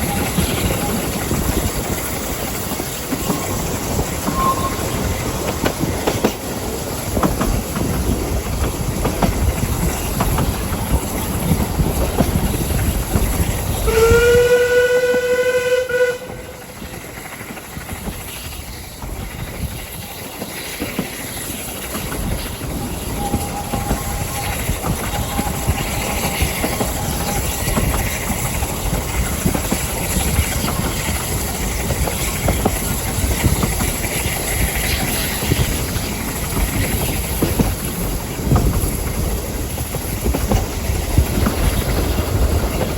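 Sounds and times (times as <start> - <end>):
train rumble and wheel clatter: 0.0 - 42.9
locomotive whistle blast: 4.3 - 5.0, 13.8 - 16.8.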